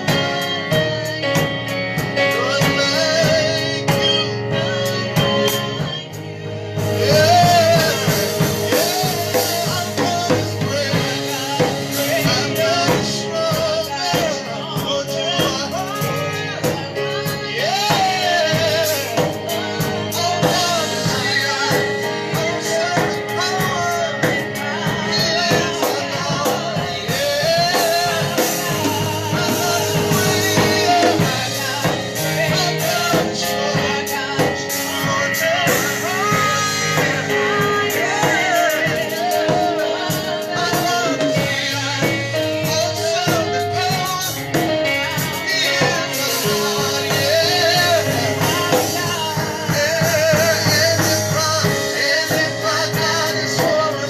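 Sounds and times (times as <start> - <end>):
band with drums and guitar: 0.0 - 54.0
person singing: 0.0 - 54.0.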